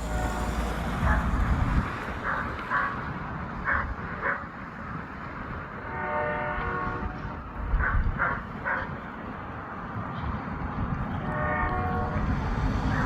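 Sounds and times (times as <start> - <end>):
train horn: 0.0 - 1.2, 5.8 - 7.5, 11.2 - 13.0
diesel locomotive rumble: 0.0 - 13.0.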